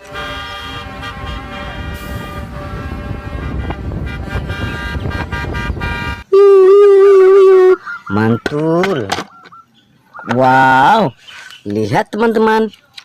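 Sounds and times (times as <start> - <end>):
car horn honk: 0.0 - 6.3
vehicle engine rumbling: 0.0 - 6.4.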